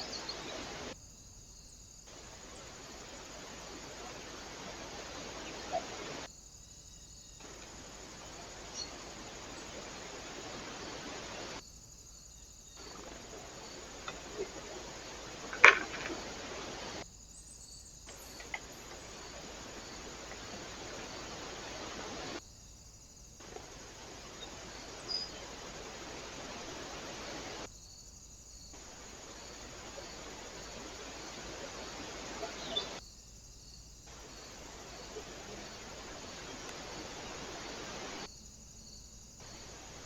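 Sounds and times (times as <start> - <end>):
steady outdoor hiss: 0.0 - 40.0
faint ticks: 12.9 - 17.0, 18.1 - 21.1, 35.0 - 37.0.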